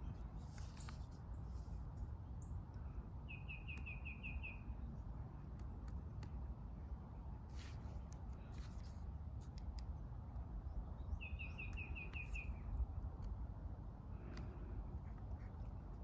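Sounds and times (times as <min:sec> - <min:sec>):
low outdoor rumble: 0:00.0 - 0:03.8, 0:04.5 - 0:16.0
small bird chirping: 0:03.3 - 0:04.8, 0:11.0 - 0:12.7.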